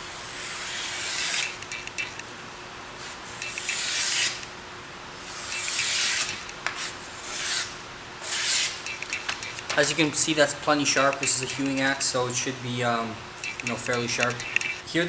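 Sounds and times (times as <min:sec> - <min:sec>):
axe edge scraping: 0:00.2 - 0:01.8, 0:03.3 - 0:04.4, 0:05.3 - 0:10.1.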